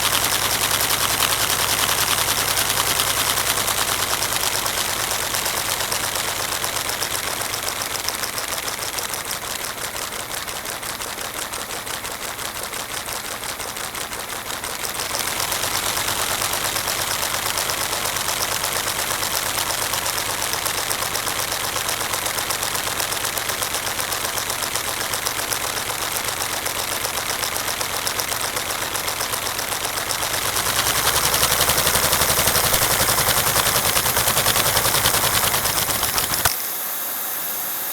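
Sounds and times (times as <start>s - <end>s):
plastic engine clattering: 0.0s - 36.6s
air hiss: 30.5s - 37.9s.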